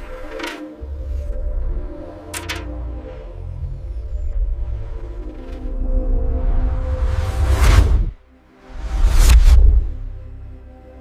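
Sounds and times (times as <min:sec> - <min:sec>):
cinematic background music: 0:00.0 - 0:11.0
whoosh: 0:06.3 - 0:10.2.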